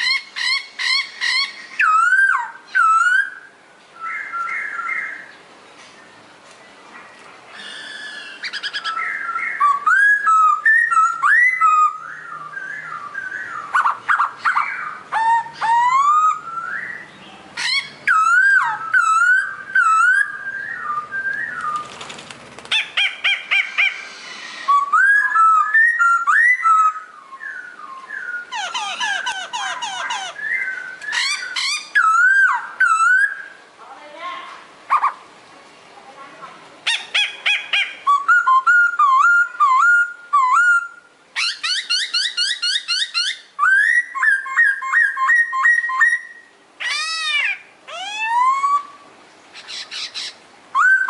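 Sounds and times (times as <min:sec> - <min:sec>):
songbird singing: 0:00.0 - 0:51.0.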